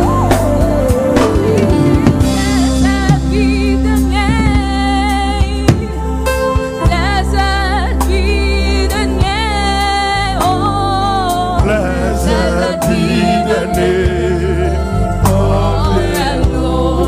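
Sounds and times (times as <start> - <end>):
deep bass line: 0.0 - 17.0
drum hits: 0.3 - 3.6, 4.2 - 4.8, 5.4 - 6.1
person singing with vibrato: 10.5 - 17.0.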